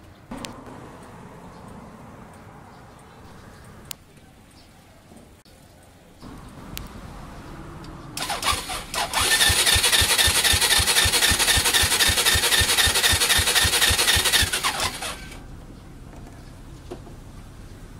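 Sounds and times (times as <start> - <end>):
electric starter whine: 8.2 - 15.4.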